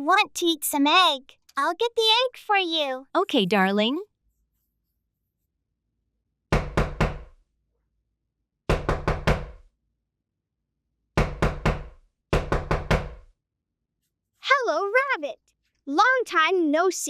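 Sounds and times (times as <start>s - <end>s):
knocking on a door: 6.5s - 7.4s, 8.7s - 9.7s, 11.2s - 13.3s.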